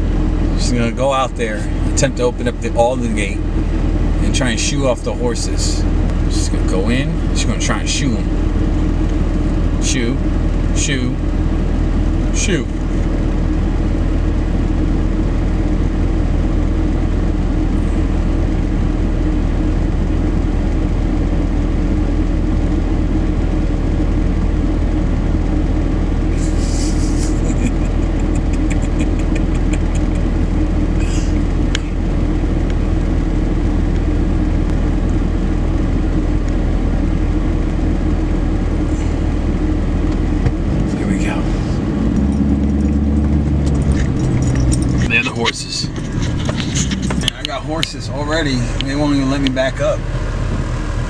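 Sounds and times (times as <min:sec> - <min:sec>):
vehicle engine running: 0:00.0 - 0:51.0.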